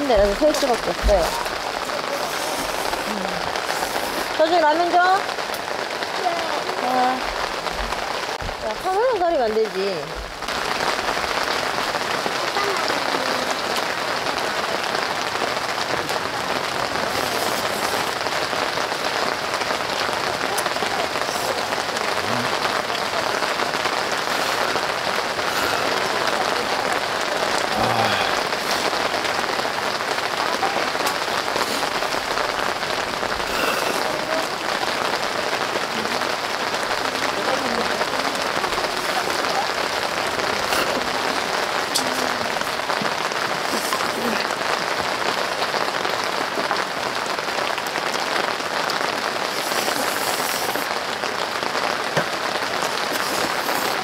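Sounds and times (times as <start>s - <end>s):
heavy rain on a tent: 0.0s - 54.0s.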